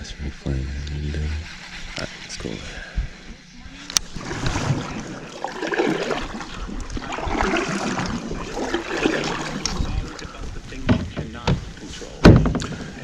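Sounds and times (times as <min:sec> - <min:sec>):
water sloshing around kayak: 0:04.0 - 0:13.0.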